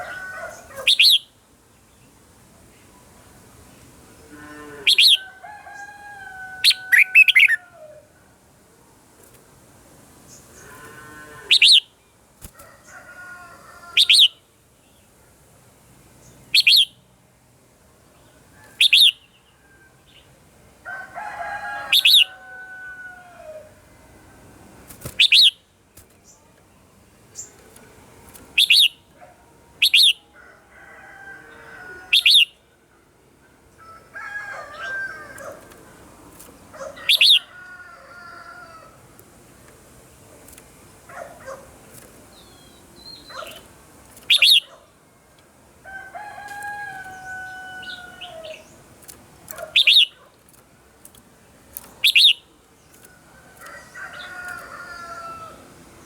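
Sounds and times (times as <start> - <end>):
birds singing warbled phrases: 0.0 - 1.4, 4.8 - 5.9, 6.6 - 7.7, 11.5 - 12.2, 13.9 - 15.0, 16.2 - 17.0, 18.3 - 19.4, 21.8 - 22.4, 25.0 - 27.6, 28.4 - 29.2, 29.8 - 30.3, 32.0 - 32.8, 36.6 - 37.5, 41.0 - 44.8, 47.0 - 51.2, 51.8 - 53.1.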